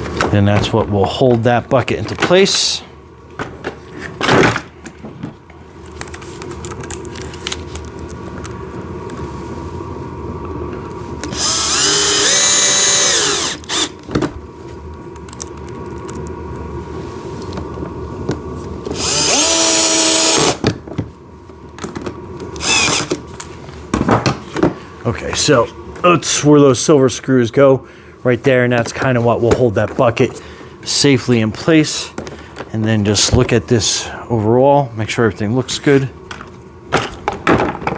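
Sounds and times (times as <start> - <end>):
power drill driving screws: 11.2 - 14.0, 18.9 - 20.6, 22.6 - 23.1.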